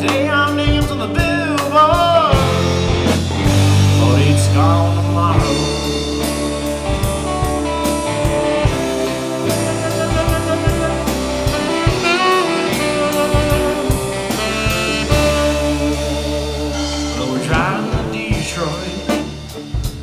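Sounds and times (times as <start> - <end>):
bass guitar: 0.0 - 20.0
drum kit beat: 0.0 - 20.0
electric guitars: 0.0 - 20.0
lead guitar bending notes: 1.4 - 20.0.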